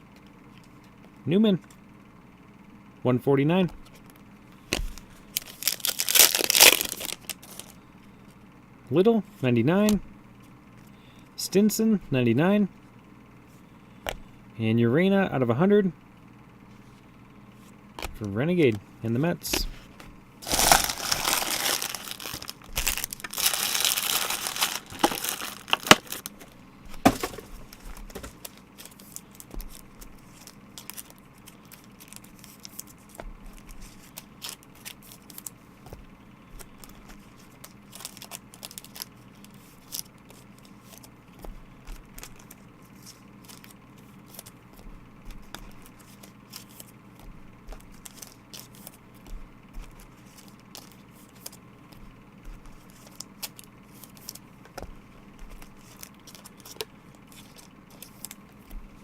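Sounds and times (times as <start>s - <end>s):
plastic wrappers crinkling: 4.8s - 7.8s, 20.4s - 35.5s, 36.6s - 41.1s, 47.7s - 49.0s, 49.8s - 51.6s, 55.5s - 58.7s
cards clicking and tapping: 19.4s - 36.0s, 39.8s - 59.0s.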